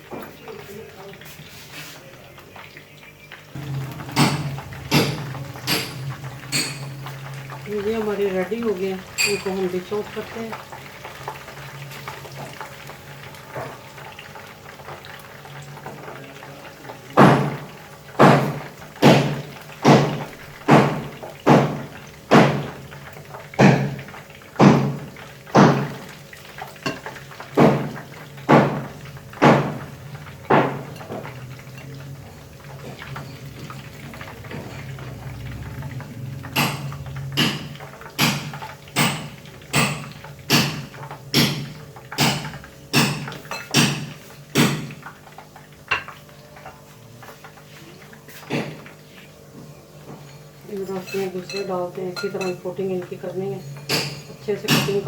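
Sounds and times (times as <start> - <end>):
metal utensil knocking cookware: 3.6 - 7.3, 9.2 - 9.6.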